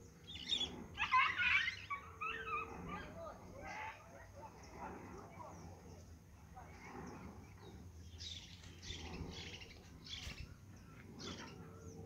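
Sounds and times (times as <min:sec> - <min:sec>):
bird chirping: 0:00.0 - 0:03.9, 0:06.9 - 0:12.0.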